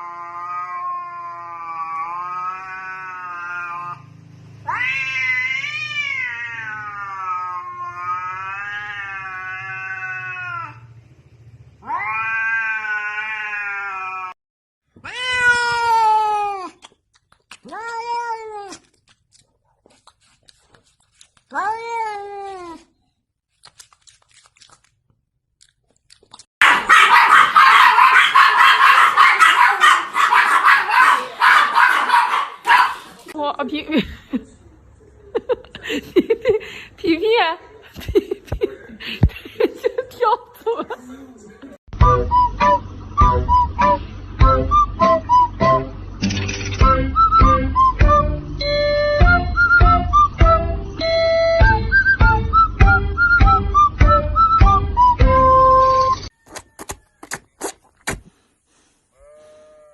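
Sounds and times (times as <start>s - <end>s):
cat yowling and meowing: 0.0s - 10.9s, 11.8s - 14.4s, 15.0s - 16.8s, 17.6s - 18.9s, 21.5s - 22.9s, 59.2s - 59.9s.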